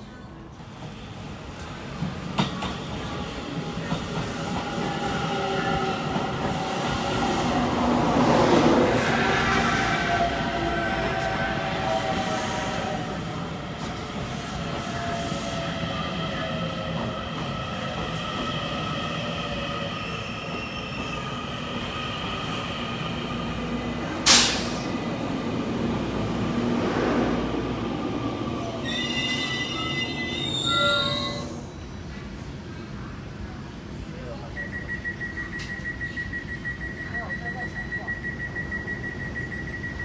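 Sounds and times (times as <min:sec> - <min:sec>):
squealing train wheels: 0:00.8 - 0:25.2, 0:27.7 - 0:32.1.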